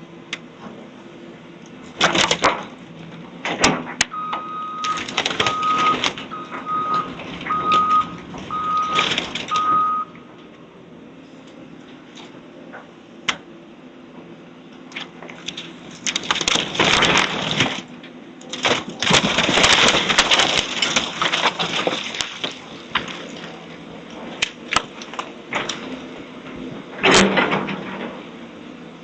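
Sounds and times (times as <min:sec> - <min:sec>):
debris crunching and splintering: 0:01.9 - 0:02.8, 0:03.4 - 0:09.9, 0:14.9 - 0:28.2.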